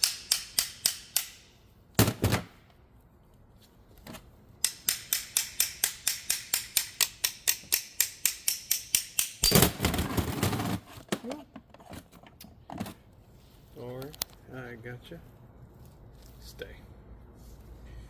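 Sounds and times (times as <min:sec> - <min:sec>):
sharp metal taps: 0:00.0 - 0:01.5, 0:04.6 - 0:09.6.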